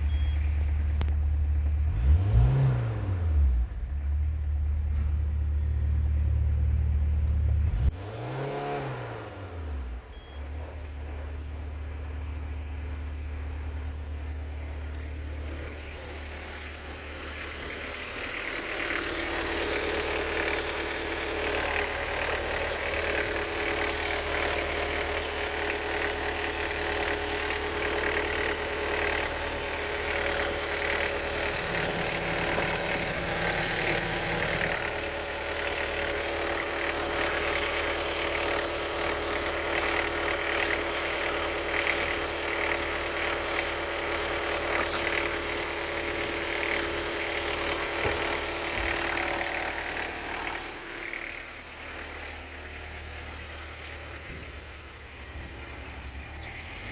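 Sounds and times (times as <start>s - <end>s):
diesel engine idling: 0.0s - 2.6s, 9.6s - 15.7s, 16.8s - 38.2s, 47.8s - 56.9s.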